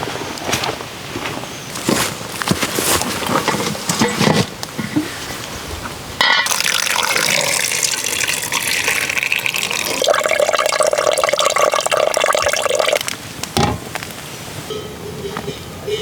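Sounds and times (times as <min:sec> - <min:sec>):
water pouring: 0:06.4 - 0:13.2.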